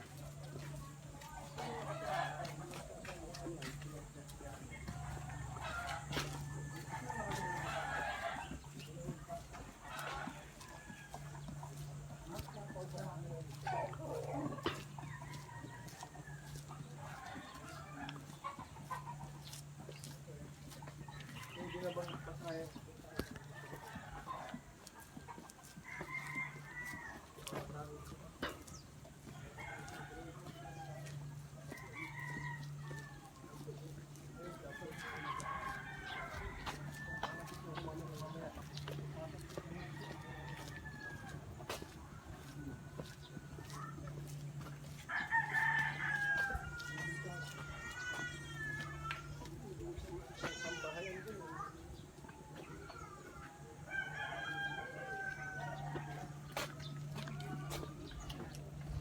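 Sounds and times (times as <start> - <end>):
chickens clucking and calling: 0.0 - 59.0
rooster crowing: 4.7 - 12.9, 13.5 - 19.9, 20.6 - 28.0, 29.2 - 49.2, 53.8 - 58.3.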